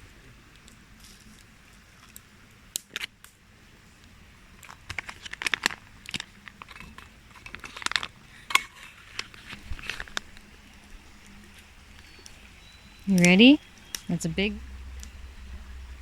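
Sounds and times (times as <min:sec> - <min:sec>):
packaging crinkling: 0:04.6 - 0:12.2.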